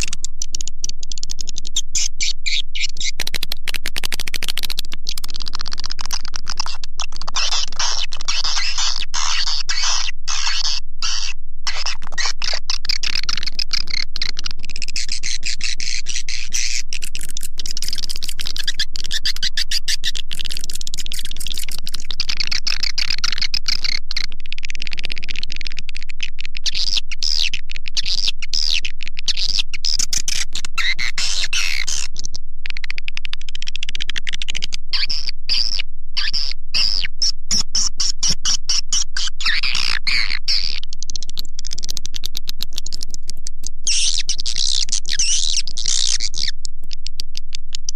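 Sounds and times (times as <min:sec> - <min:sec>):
swiftlet chirps and twitters: 0:00.0 - 0:04.2, 0:05.1 - 0:24.0, 0:34.9 - 0:42.2, 0:43.8 - 0:46.6.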